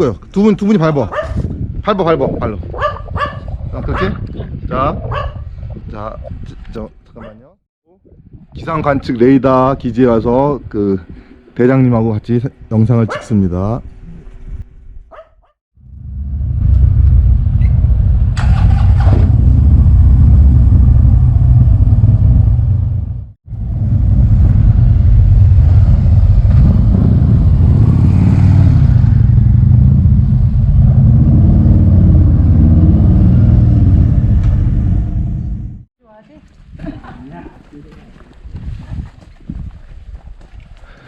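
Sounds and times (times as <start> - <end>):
motorcycle engine rumbling: 15.8 - 35.9.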